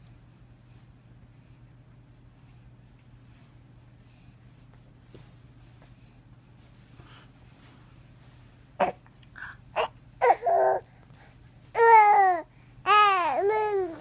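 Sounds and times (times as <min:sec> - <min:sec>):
baby grunting and squeaking: 0:09.8 - 0:10.9
baby whiny cry: 0:09.8 - 0:10.9, 0:11.8 - 0:14.0.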